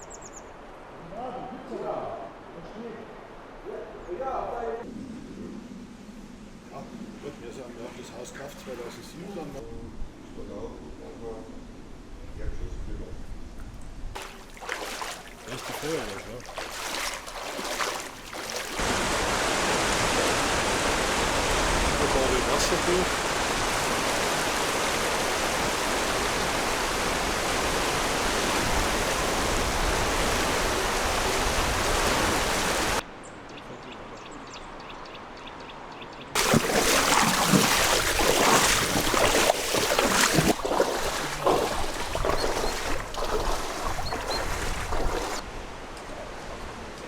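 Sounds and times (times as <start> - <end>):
floodwater rushing: 14.2 - 33.0, 36.4 - 47.0.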